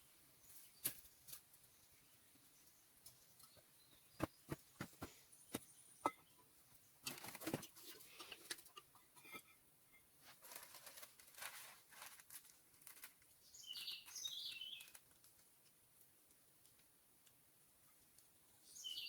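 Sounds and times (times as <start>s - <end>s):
bird chirping: 0.4s - 7.1s, 13.4s - 15.0s, 18.6s - 19.0s
faint rustling: 10.2s - 13.3s.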